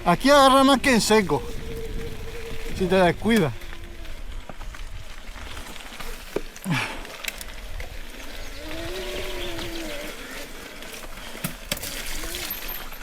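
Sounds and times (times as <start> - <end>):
bike rattling and knocking: 0.0 - 13.0
low moaning tone: 1.1 - 4.6.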